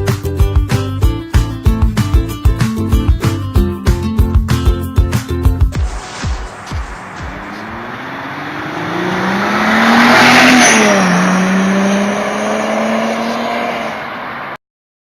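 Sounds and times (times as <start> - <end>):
car driving past: 5.9 - 14.6.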